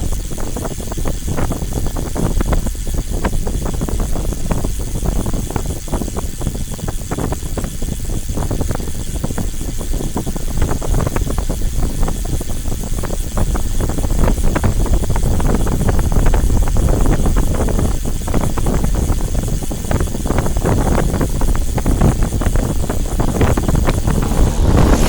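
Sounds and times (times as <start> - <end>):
vehicle rumble: 22.8 - 25.0.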